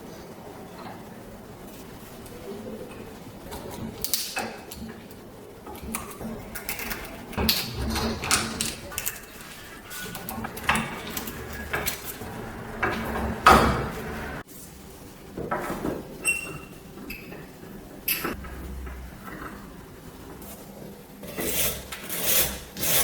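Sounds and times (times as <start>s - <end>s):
metal parts knocking and scraping: 6.0s - 14.4s
metal clatter: 6.6s - 14.4s.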